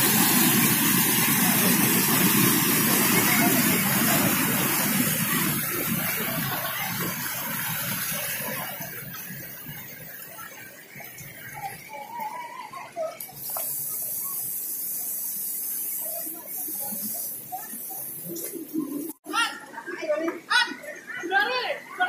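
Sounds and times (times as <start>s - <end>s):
waterfall rushing: 0.0s - 11.9s
faint distant voices: 0.3s - 22.0s.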